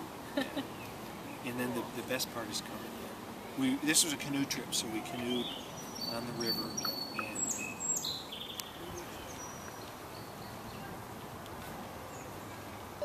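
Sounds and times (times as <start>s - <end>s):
outdoor background noise: 0.0s - 13.0s
high bird chirps: 5.4s - 10.5s.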